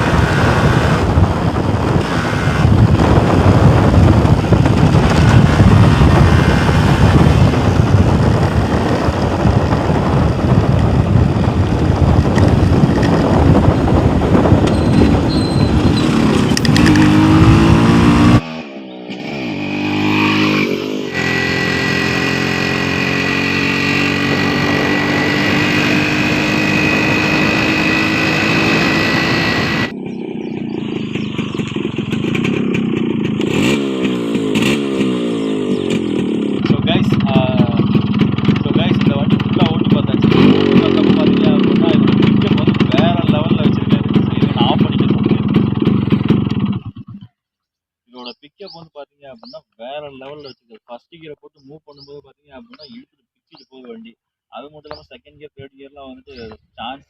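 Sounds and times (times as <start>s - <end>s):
wind rush on microphone: 0.0s - 18.4s, 21.8s - 35.1s
motorcycle engine revving: 0.0s - 47.3s.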